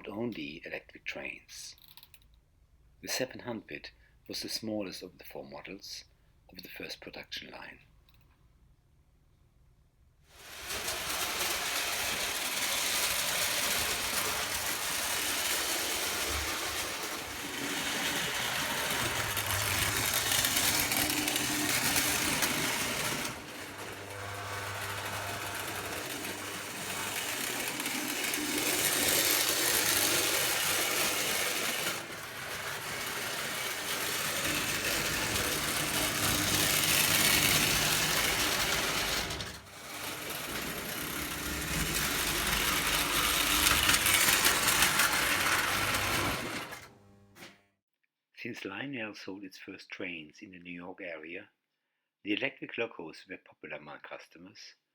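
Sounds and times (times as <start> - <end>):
toy train motor whirring: 10.3 - 47.5.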